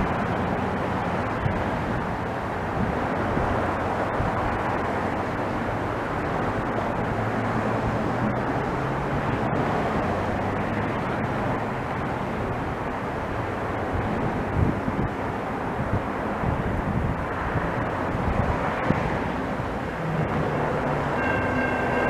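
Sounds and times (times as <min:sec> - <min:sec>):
train rumbling past: 0:17.3 - 0:22.0.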